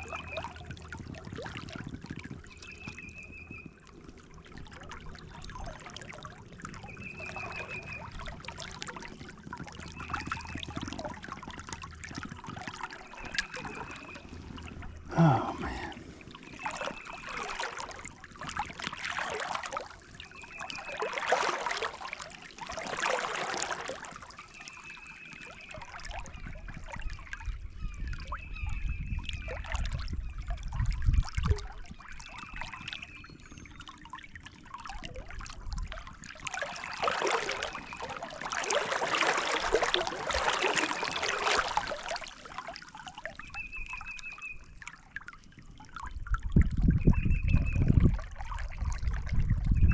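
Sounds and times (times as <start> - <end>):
creek water trickling: 0.0 - 49.9.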